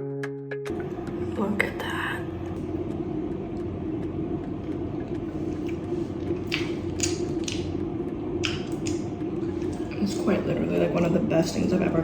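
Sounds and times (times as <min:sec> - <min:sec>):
steady low hum: 0:00.7 - 0:12.0
wet squelching of pasta: 0:05.4 - 0:07.7.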